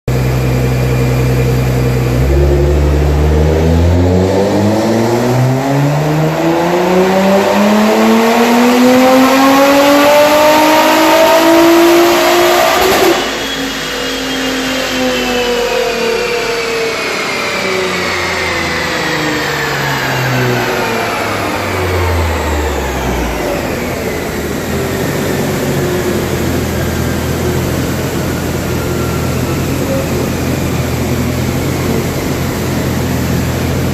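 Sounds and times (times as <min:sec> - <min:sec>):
car engine idling: 0:00.1 - 0:04.4, 0:17.9 - 0:33.9
car engine revving on dyno: 0:00.1 - 0:33.9.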